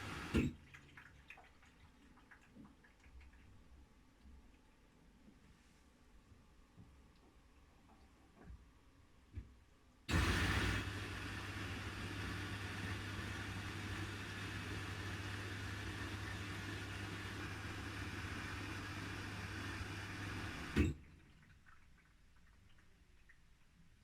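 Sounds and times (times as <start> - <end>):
washing machine hum: 0.0 - 3.8, 10.1 - 23.6.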